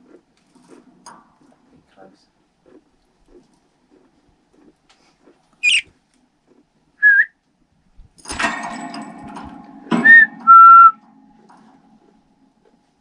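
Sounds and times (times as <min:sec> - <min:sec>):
budgerigar chirps and chatter: 0:05.6 - 0:05.9
short whistled notes: 0:07.0 - 0:07.3, 0:10.0 - 0:11.0.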